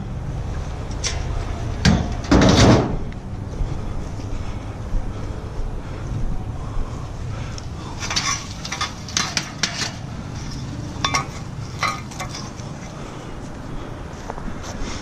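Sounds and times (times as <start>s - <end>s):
steady low rumble: 0.0s - 15.0s
scrap metal clanking: 1.0s - 3.1s, 7.9s - 13.0s.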